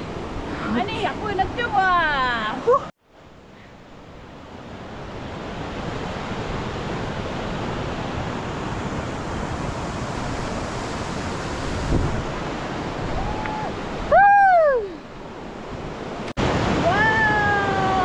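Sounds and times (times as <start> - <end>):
waterfall rushing: 5.6 - 15.0, 16.2 - 18.0.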